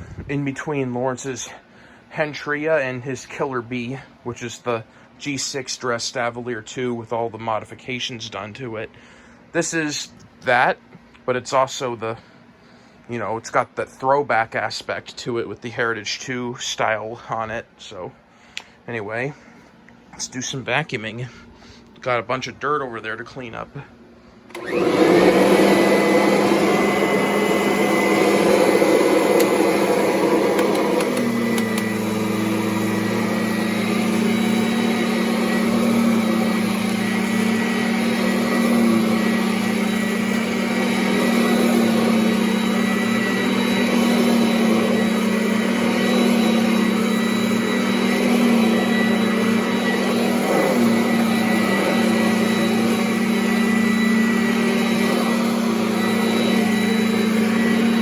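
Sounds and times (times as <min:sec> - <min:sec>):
vacuum cleaner on carpet: 0:24.5 - 0:58.0.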